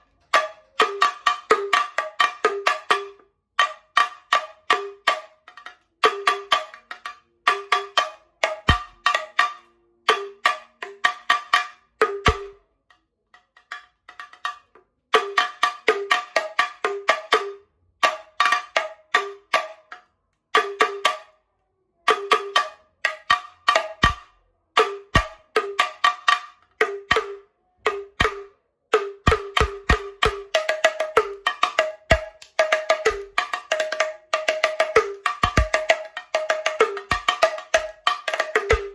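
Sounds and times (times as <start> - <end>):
pitched percussion strokes: 29.0 - 38.9.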